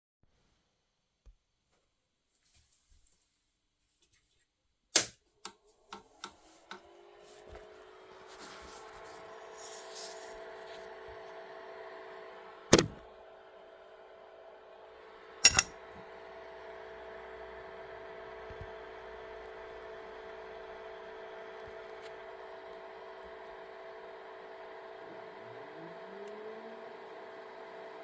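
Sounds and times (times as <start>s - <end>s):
whirring hum with a whine: 6.1s - 28.0s.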